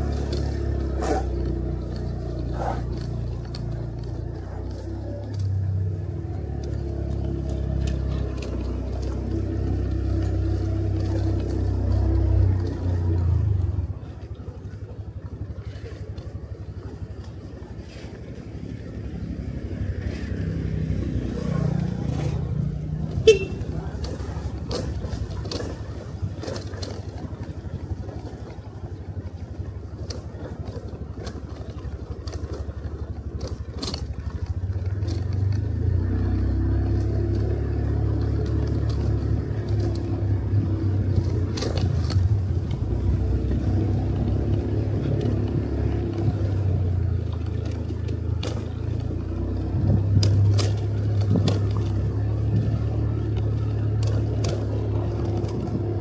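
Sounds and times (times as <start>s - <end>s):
motorcycle engine running: 0.0s - 56.0s
road noise: 0.0s - 56.0s
light clicks and rattles: 23.8s - 56.0s.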